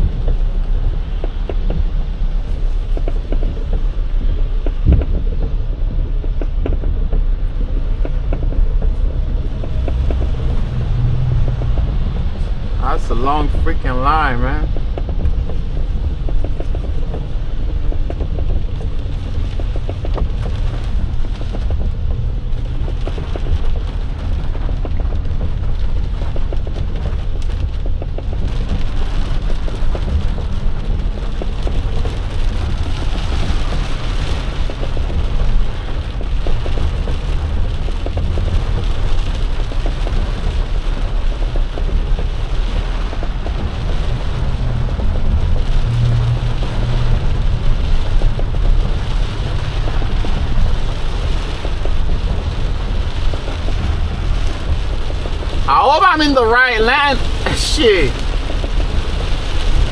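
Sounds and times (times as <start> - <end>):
heavy rain on truck cab: 0.0 - 59.9
truck engine rumble: 0.0 - 59.9.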